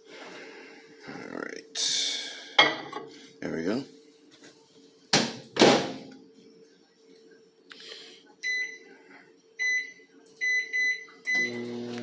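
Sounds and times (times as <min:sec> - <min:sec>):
microwave keypad beeping: 0:09.6 - 0:11.7.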